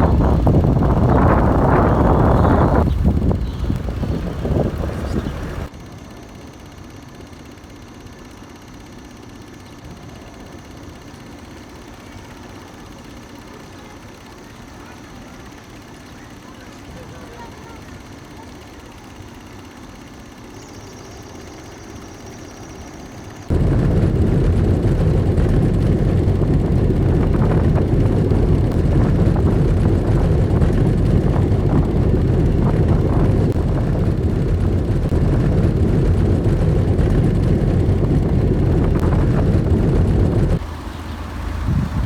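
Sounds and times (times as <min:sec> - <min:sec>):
loud engine noise: 0:00.0 - 0:05.7, 0:23.2 - 0:42.0.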